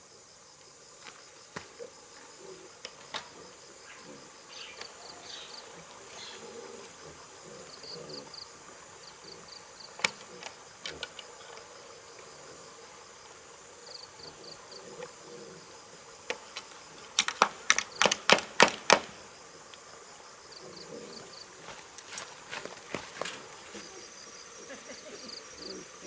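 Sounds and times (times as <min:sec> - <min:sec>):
insects chirping: 0:00.0 - 0:26.0
sharp knocks: 0:17.2 - 0:19.2.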